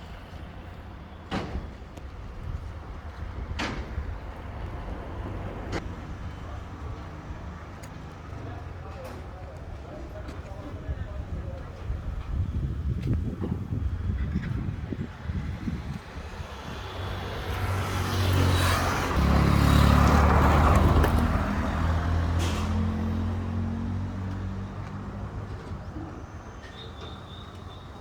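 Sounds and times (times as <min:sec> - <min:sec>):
vehicle engine passing by: 0:15.7 - 0:25.8.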